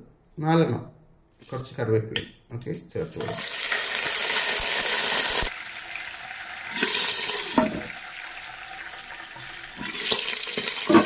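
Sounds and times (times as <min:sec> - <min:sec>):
spices sizzling in hot oil: 0:03.2 - 0:11.0.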